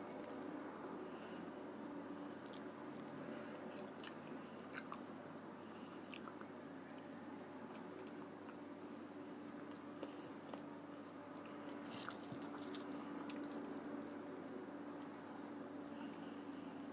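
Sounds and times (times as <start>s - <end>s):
person chewing chicken wings: 2.4s - 7.0s, 11.3s - 14.2s.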